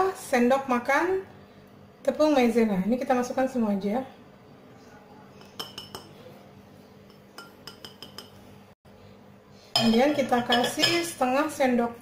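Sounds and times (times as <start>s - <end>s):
utensils clinking against a bowl: 5.4s - 6.2s, 7.0s - 8.4s, 9.8s - 11.2s.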